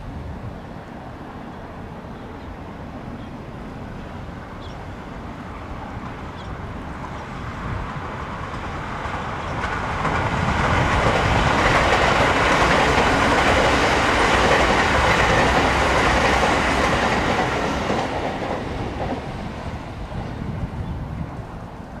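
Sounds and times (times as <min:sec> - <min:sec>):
train wheels on track: 0:00.6 - 0:22.0.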